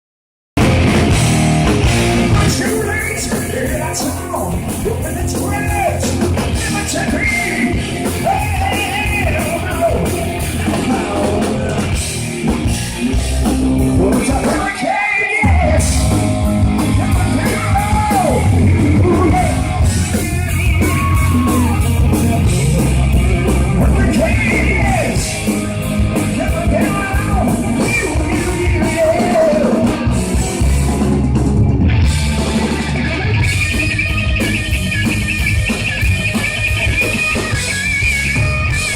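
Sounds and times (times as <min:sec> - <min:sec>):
live hard rock band: 0:00.6 - 0:38.9
person singing: 0:02.3 - 0:12.2, 0:13.0 - 0:25.4, 0:26.2 - 0:30.2.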